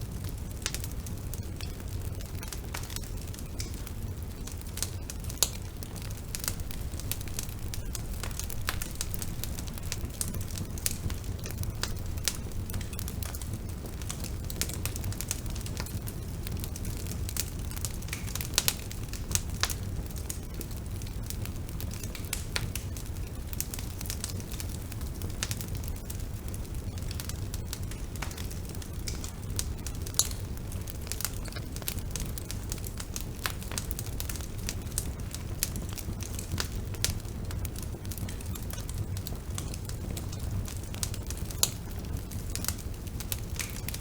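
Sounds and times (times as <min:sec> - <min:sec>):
bonfire rumbling: 0:00.0 - 0:44.0
fire crackling and popping: 0:00.0 - 0:44.0.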